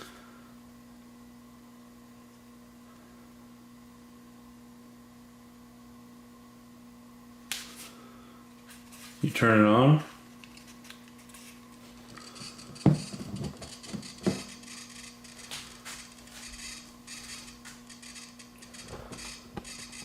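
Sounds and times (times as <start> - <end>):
meter alert high buzzy pulsing: 11.8 - 20.0.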